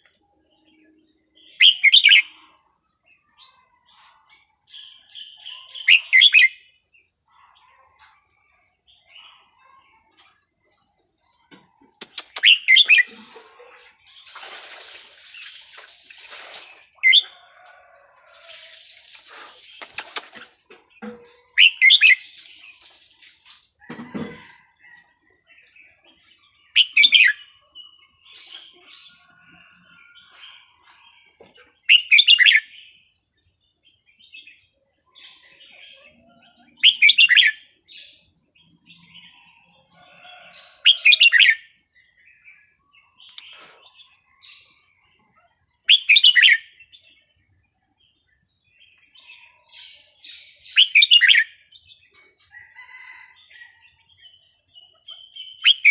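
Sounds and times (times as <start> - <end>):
bulbul warbled song: 11.7 - 13.6.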